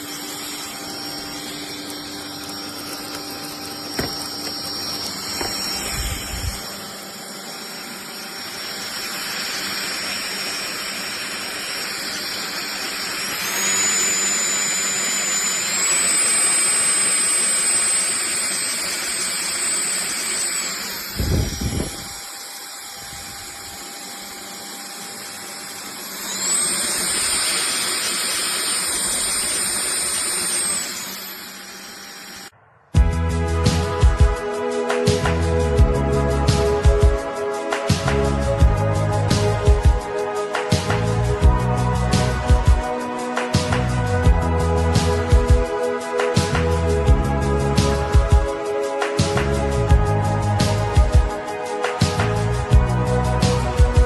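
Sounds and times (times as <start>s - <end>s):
stick vacuum motor whining: 0.0s - 32.6s.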